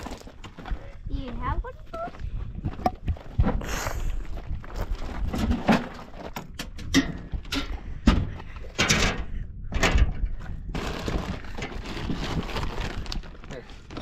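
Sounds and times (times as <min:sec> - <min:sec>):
objects knocking and clattering: 0:05.2 - 0:12.1.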